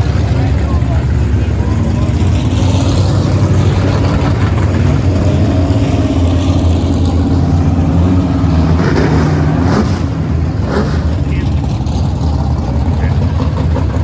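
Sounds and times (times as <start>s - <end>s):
race car engine drone: 0.0s - 14.0s.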